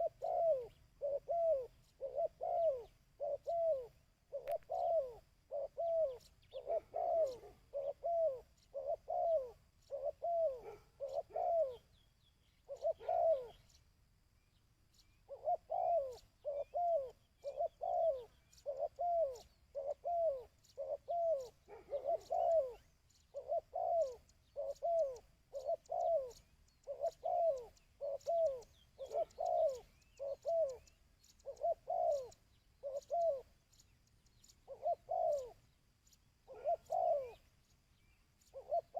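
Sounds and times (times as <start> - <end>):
dove cooing: 0.0 - 13.8, 15.0 - 38.9
faint high chirps: 0.0 - 38.9.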